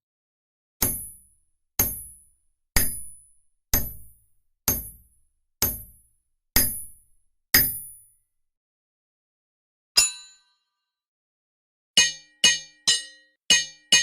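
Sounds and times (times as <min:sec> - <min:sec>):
hammer striking an anvil: 0:00.8 - 0:01.2, 0:01.8 - 0:02.2, 0:02.8 - 0:03.2, 0:03.8 - 0:04.1, 0:04.7 - 0:06.0, 0:06.6 - 0:07.0, 0:07.6 - 0:08.0, 0:10.0 - 0:10.6, 0:12.0 - 0:14.0.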